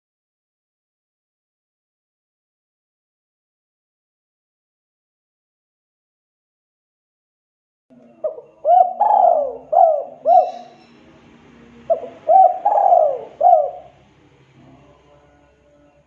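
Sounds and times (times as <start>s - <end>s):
dove cooing: 8.0s - 14.1s.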